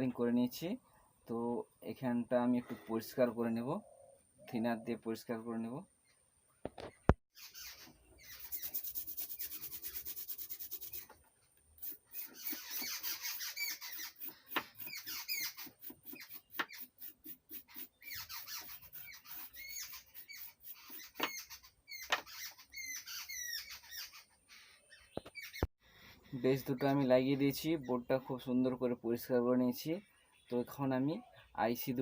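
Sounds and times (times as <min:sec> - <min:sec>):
short high squeaks: 0:07.4 - 0:11.2, 0:11.8 - 0:24.3
rubbing strokes on circuit board: 0:08.2 - 0:11.2, 0:11.8 - 0:21.6.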